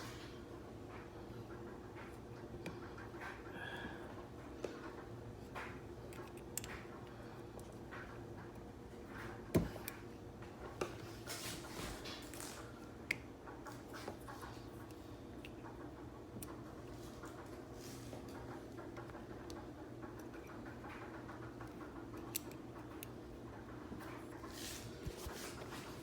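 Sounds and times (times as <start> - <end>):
faint steady hum: 0.0 - 26.0
small plastic parts clicking: 6.1 - 6.9, 21.6 - 23.2.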